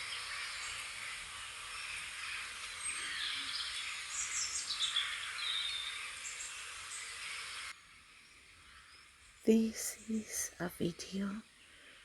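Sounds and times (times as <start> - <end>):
small birds chirping and singing: 0.0 - 12.0
steady outdoor hiss: 0.0 - 12.0.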